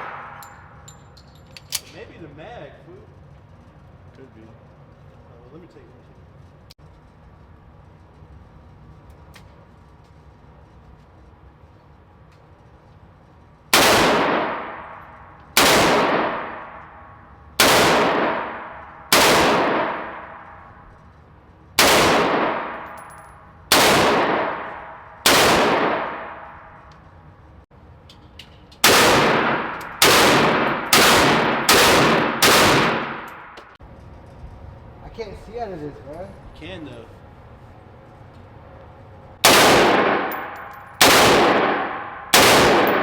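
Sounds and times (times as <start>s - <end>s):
gunshots with ringing echo: 0.0s - 0.4s, 13.7s - 17.0s, 17.6s - 20.7s, 21.8s - 26.8s, 28.8s - 33.6s, 39.4s - 43.0s.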